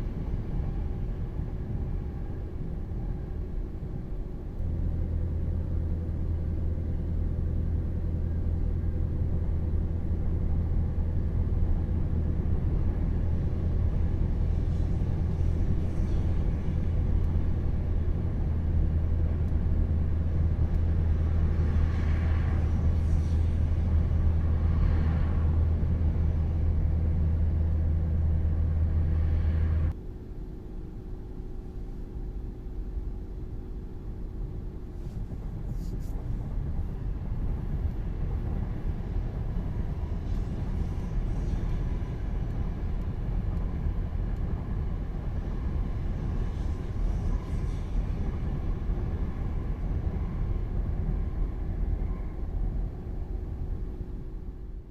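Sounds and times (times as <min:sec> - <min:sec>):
train rumble: 0:00.0 - 0:54.9.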